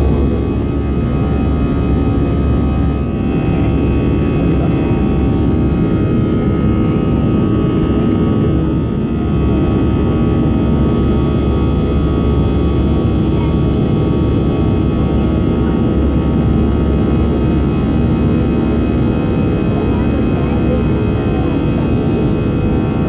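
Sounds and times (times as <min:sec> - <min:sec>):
aircraft cabin engine drone: 0:00.0 - 0:23.0.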